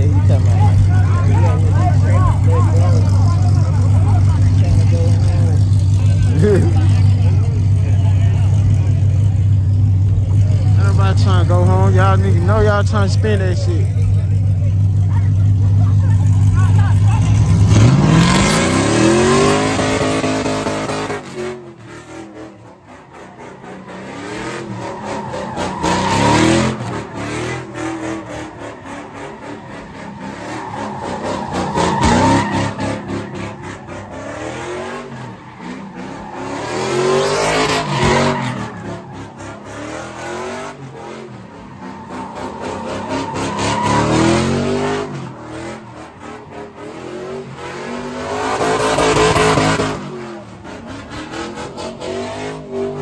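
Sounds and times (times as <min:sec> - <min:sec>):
car engine revving hard: 0:00.0 - 0:53.0
tyres squealing: 0:22.9 - 0:50.0.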